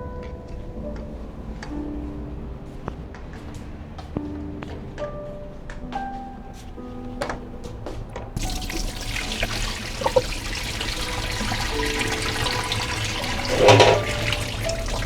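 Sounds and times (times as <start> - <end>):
soft background music: 0.0 - 15.0
water running from a tap: 8.4 - 15.0
water splash: 8.4 - 15.0.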